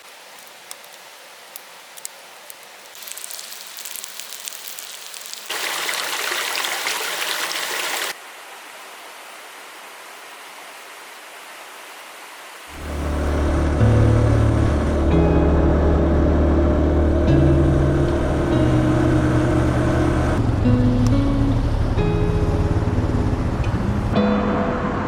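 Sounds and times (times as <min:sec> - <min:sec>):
clicks and crackles: 0:00.0 - 0:05.5
mountain stream rushing: 0:00.0 - 0:15.0.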